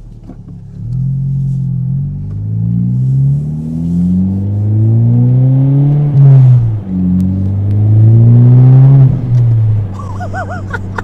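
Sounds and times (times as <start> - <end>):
car engine accelerating hard: 0.1 - 11.0.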